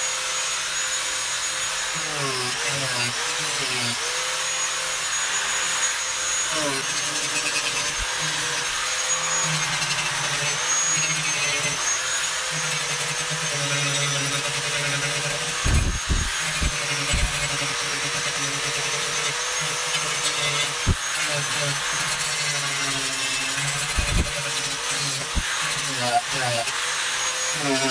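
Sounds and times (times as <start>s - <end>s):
rotary tool grinding whine: 0.0s - 27.9s
low thumps: 15.7s - 17.4s.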